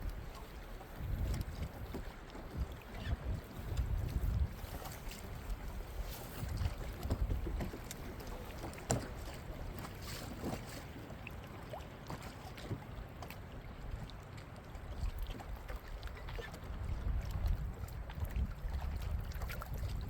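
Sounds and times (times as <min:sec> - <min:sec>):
wind rumbling on microphone: 0:00.0 - 0:10.8, 0:14.8 - 0:20.0
water against boat hull: 0:00.0 - 0:20.0.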